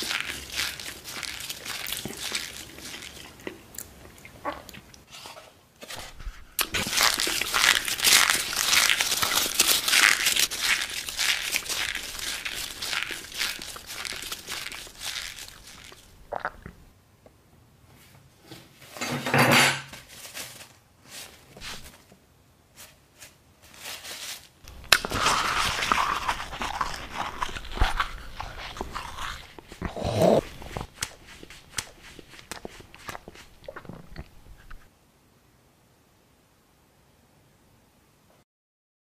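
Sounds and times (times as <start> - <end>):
chewing and crunching food: 0.0 - 5.1, 5.8 - 16.9, 24.6 - 34.9
throaty growl-like vocal sounds: 29.8 - 30.8.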